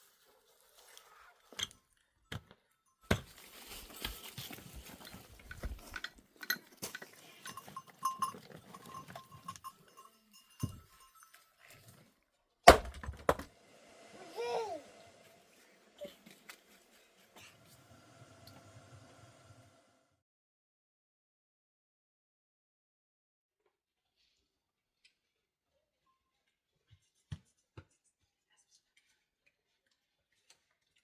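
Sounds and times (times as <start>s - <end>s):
livestock bells clinking: 7.0s - 11.8s.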